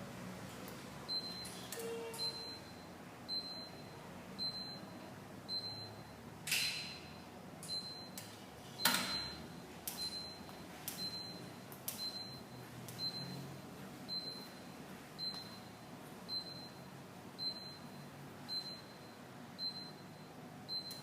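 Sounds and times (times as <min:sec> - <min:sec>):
short high beeps: 0:01.1 - 0:04.9.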